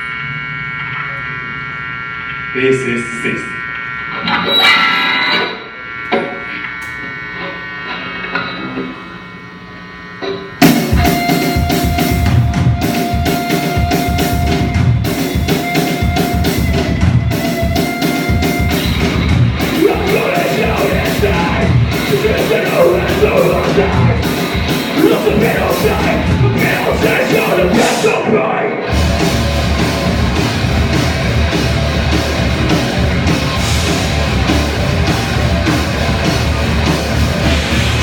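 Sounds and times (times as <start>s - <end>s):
amplifier buzz: 0.0s - 38.0s
rock band playing heavy metal: 10.1s - 38.0s.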